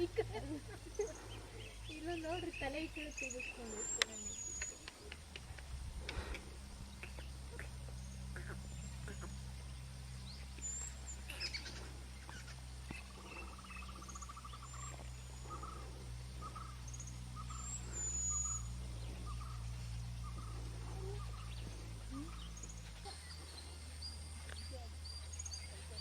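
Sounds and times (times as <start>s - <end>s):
bird trill: 0.0s - 5.2s, 6.9s - 25.8s
forest birds chirping and whistling: 0.0s - 26.0s
steady low hum: 0.0s - 26.0s.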